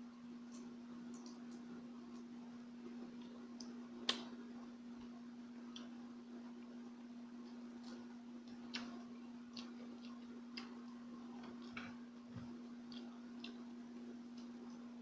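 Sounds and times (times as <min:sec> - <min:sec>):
low electrical hum: 0:00.0 - 0:15.0
chewing mouth noises: 0:07.4 - 0:14.9.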